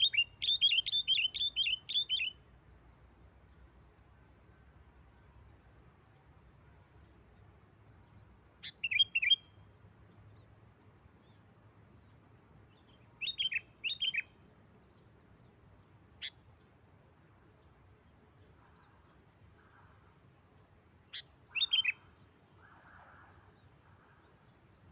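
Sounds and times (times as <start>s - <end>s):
bulbul calling: 0.0s - 2.4s, 8.6s - 9.6s, 12.9s - 14.4s, 21.1s - 24.3s.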